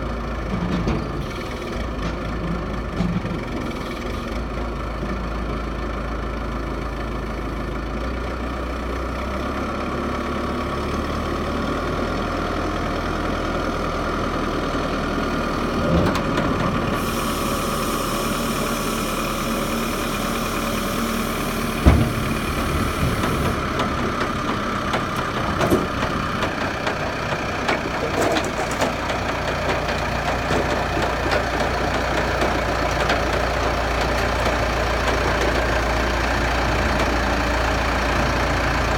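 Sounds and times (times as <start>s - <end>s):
diesel engine running: 0.0s - 38.9s
hiss: 17.0s - 23.6s.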